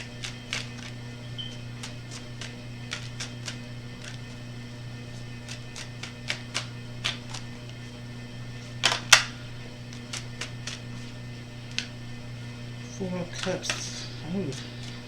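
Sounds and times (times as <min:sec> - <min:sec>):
card snap: 0:00.0 - 0:04.4, 0:05.2 - 0:07.8, 0:08.6 - 0:12.0, 0:13.4 - 0:15.0
cards clicking and tapping: 0:00.0 - 0:04.5, 0:05.1 - 0:07.8, 0:08.6 - 0:12.0, 0:13.3 - 0:15.0
low hum: 0:00.0 - 0:15.0.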